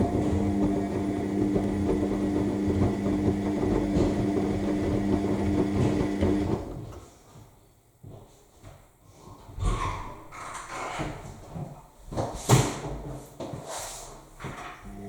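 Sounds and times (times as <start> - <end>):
washing machine drum motor: 0.0 - 7.0.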